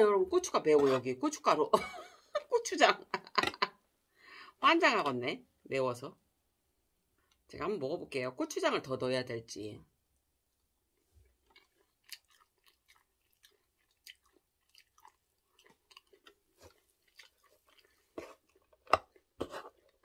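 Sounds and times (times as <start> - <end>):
chewing dried squid: 11.0 - 20.0.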